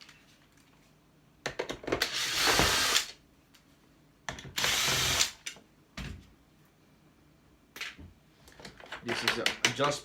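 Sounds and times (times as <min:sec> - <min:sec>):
power drill running: 0:02.1 - 0:03.1, 0:04.6 - 0:05.4.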